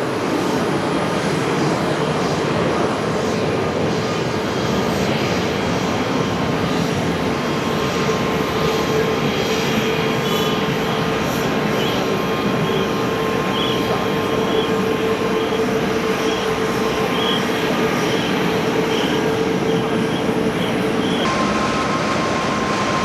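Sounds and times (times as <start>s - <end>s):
jet engines running: 0.0s - 23.0s.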